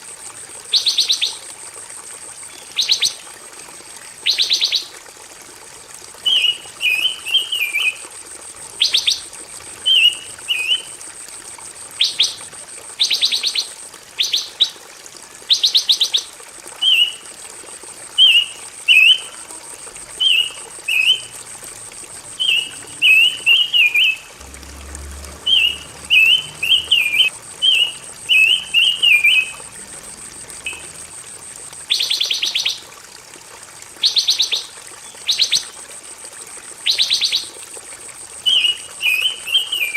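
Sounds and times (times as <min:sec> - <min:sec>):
thin steady high tone: 0:16.8 - 0:32.8.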